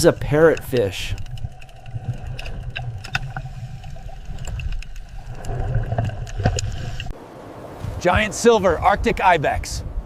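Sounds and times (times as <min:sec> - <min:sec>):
sharp underwater clicks and crackles: 0:00.0 - 0:07.2
underwater low rumble: 0:00.0 - 0:07.2.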